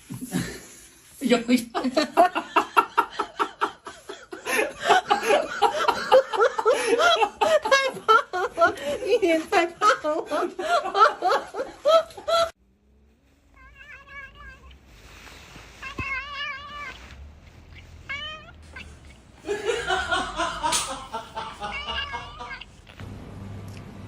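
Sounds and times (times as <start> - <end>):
cat yowling: 13.5 - 14.8, 15.7 - 19.2, 21.6 - 22.8
cat meowing: 13.5 - 19.2, 21.6 - 22.8.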